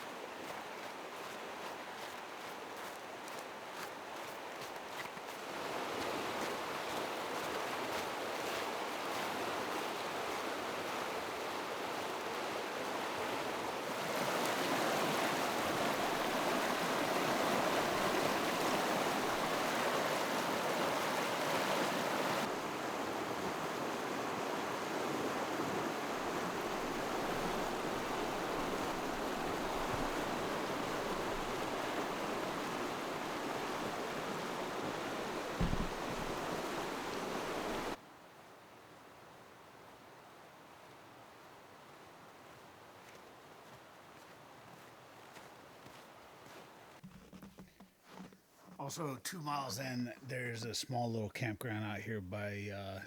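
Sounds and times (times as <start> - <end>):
river rushing over rapids: 5.4 - 38.0.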